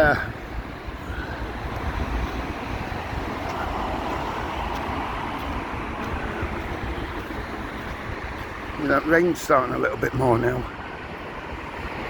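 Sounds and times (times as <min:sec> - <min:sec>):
wind buffeting microphone: 0:00.0 - 0:12.0
vehicle passing by: 0:00.5 - 0:09.0.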